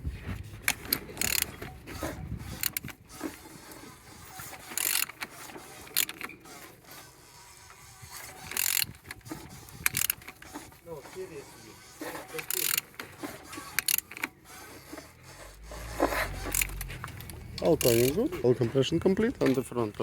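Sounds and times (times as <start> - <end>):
engine turned over by hand: 0.0 - 7.1, 11.9 - 20.0.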